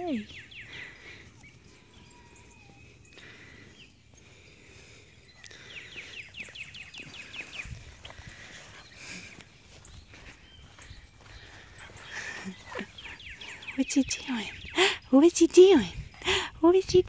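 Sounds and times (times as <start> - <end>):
songbird chirping: 0.0 - 17.0.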